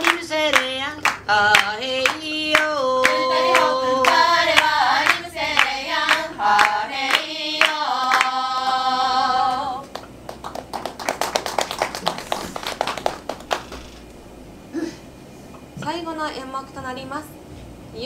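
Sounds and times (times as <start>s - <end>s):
rhythmic hand claps: 0.0s - 14.1s
group of singers singing: 1.3s - 9.9s.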